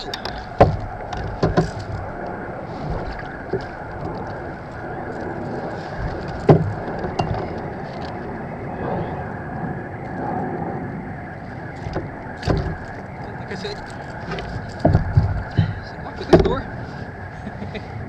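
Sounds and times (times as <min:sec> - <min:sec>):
rustling and handling noise: 0:00.0 - 0:08.4, 0:11.4 - 0:17.8
steady background noise: 0:00.0 - 0:18.0
knocks against boat hull: 0:00.1 - 0:01.9, 0:06.4 - 0:07.6, 0:11.8 - 0:12.9, 0:14.3 - 0:16.7.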